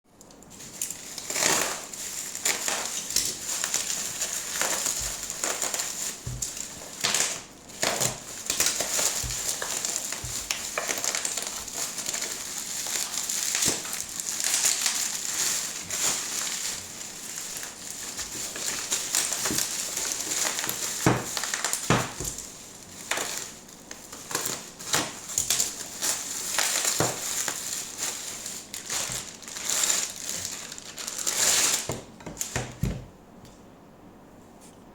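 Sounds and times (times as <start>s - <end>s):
wrapping crinkling and rustling: 0.1s - 33.1s.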